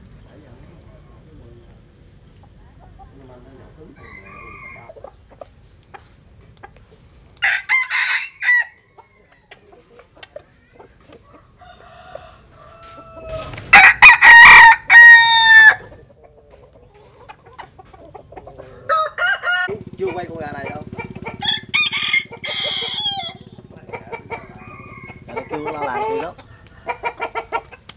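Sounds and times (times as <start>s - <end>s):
rooster crowing: 3.9s - 5.0s, 7.4s - 9.6s, 11.3s - 16.0s, 18.7s - 19.8s, 21.3s - 27.6s
soft clucks: 4.8s - 7.0s, 9.0s - 11.6s, 15.8s - 18.9s, 22.7s - 27.9s.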